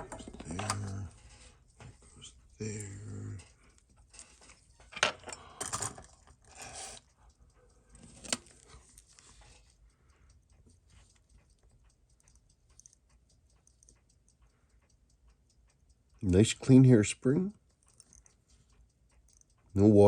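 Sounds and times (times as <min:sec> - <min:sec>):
watch movement ticking: 0:00.0 - 0:20.0
small metal tools clicking: 0:10.3 - 0:14.4, 0:17.6 - 0:18.4, 0:19.1 - 0:20.0.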